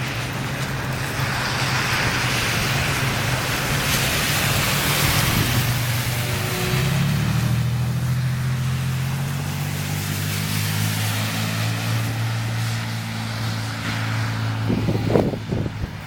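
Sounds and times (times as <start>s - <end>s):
wind buffeting microphone: 0.0s - 8.2s, 12.0s - 16.0s.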